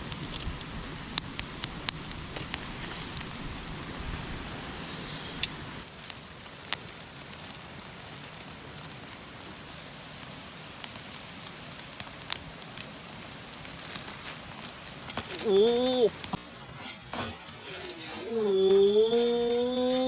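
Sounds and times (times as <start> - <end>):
campfire crackling: 5.8 - 20.0
fire popping: 5.8 - 20.0.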